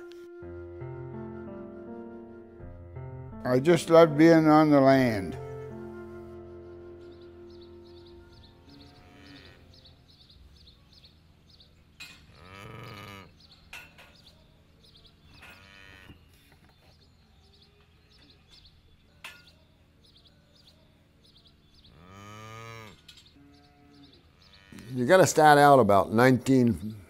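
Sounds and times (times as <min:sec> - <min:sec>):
cattle mooing: 0:08.6 - 0:09.9, 0:12.3 - 0:13.3, 0:15.6 - 0:16.2, 0:21.9 - 0:25.0.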